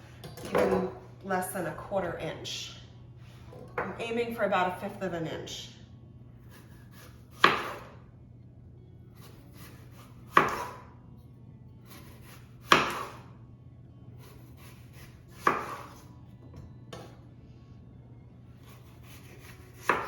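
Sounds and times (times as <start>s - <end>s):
knife cutting on a board: 6.4s - 7.9s, 9.2s - 10.9s, 14.2s - 16.0s, 18.6s - 20.0s.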